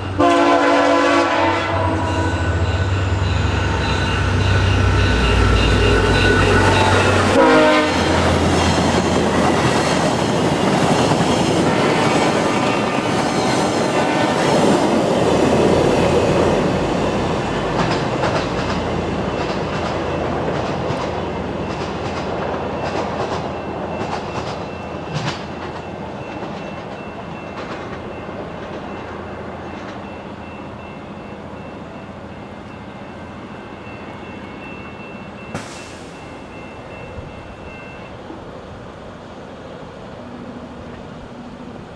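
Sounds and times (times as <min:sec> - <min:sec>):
passenger train passing at speed: 0:00.0 - 0:41.9
wheels clacking over rail joints: 0:01.8 - 0:30.1.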